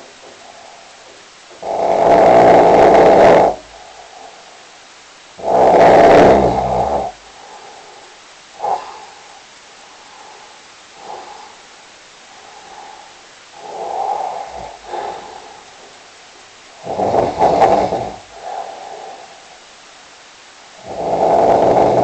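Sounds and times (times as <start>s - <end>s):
faint breathing: 0.0s - 22.0s
person snoring: 1.6s - 4.6s, 5.4s - 8.0s, 8.6s - 9.4s, 10.2s - 11.6s, 12.4s - 15.8s, 16.8s - 19.6s, 20.8s - 22.0s.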